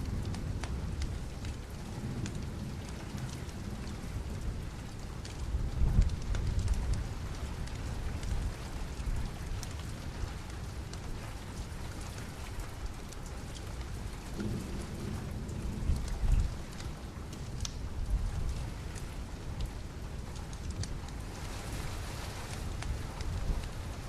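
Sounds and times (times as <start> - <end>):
steady rain: 0.0 - 24.0
low rolling thunder: 13.8 - 20.4
fireplace crackles: 16.0 - 24.0.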